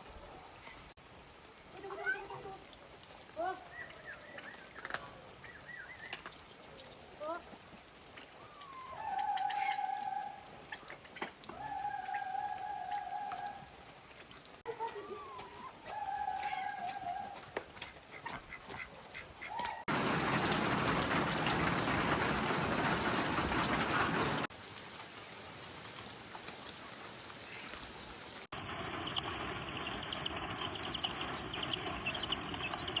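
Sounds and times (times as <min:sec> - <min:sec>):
rain falling: 0:00.0 - 0:33.0.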